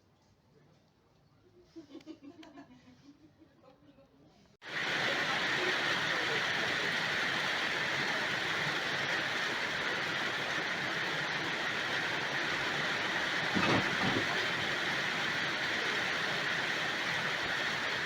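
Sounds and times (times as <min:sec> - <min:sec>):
dense hiss of heavy rain: 0:04.6 - 0:18.0.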